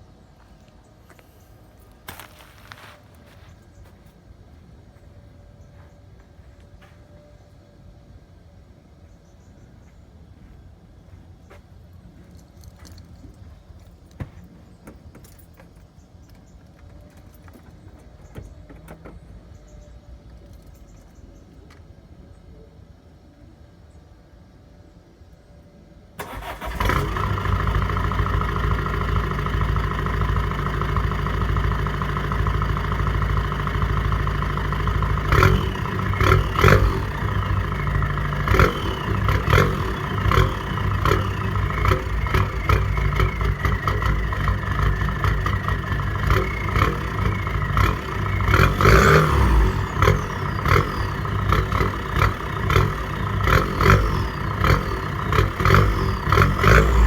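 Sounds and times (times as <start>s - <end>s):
diesel car engine revving: 26.2s - 57.0s.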